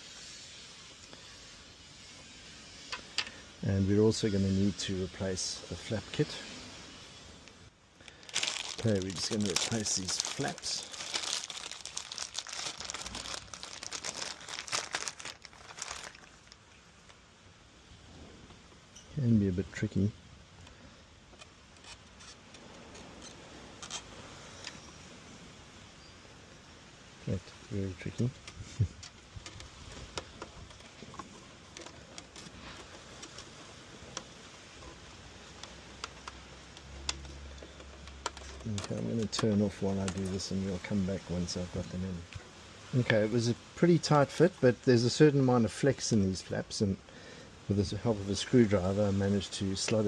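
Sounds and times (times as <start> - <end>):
plastic crinkling and rustling: 8.0 - 17.3, 27.2 - 46.7
plastic parts clicking: 28.3 - 34.4, 35.5 - 40.3.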